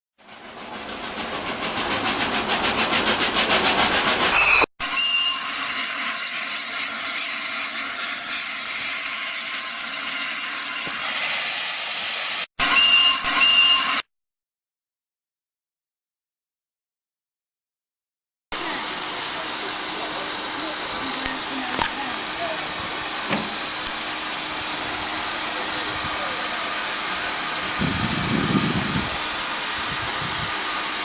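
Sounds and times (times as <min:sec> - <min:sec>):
steam locomotive chuffing: 0:00.2 - 0:14.0, 0:18.6 - 0:31.0
steam hissing: 0:00.3 - 0:14.0, 0:18.6 - 0:31.0
steam whistle toots: 0:04.3 - 0:14.1.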